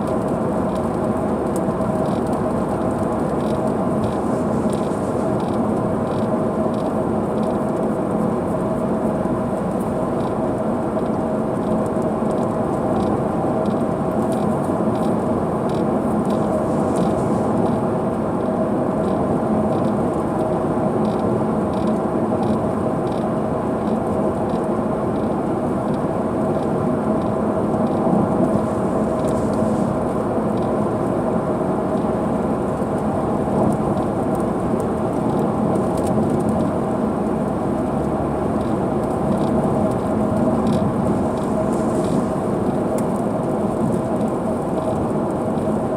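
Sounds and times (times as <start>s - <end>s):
constant hum: 0.0s - 45.9s
heavy rain on car: 0.0s - 45.9s
road noise: 0.0s - 45.9s
faint regular ticking: 1.9s - 7.6s, 10.1s - 15.1s.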